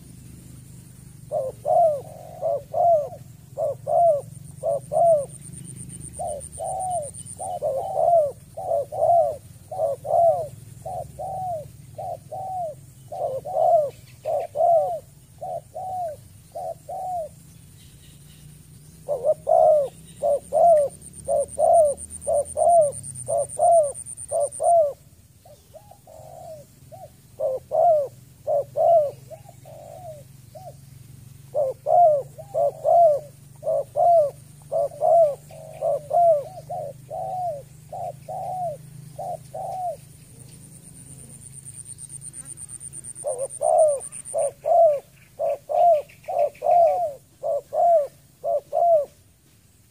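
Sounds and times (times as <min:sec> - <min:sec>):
faint high-pitched whine: 0:00.0 - 0:49.9
dove cooing: 0:01.1 - 0:17.5, 0:18.9 - 0:49.3.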